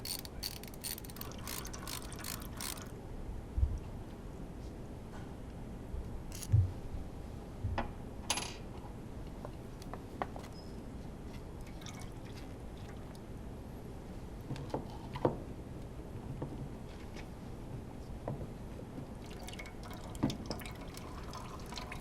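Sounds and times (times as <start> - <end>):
tools and metal parts clicking: 0.0 - 2.9, 6.3 - 6.5.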